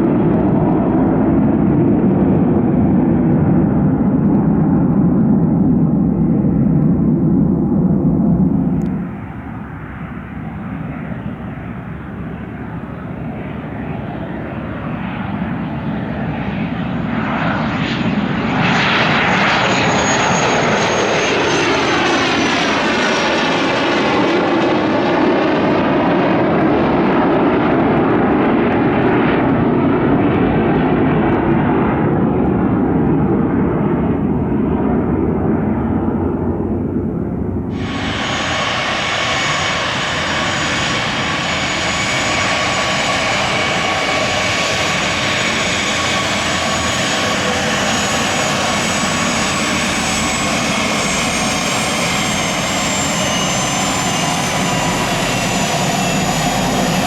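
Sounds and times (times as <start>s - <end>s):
aircraft engines passing: 0.0s - 57.0s
high engine whine: 37.5s - 57.0s.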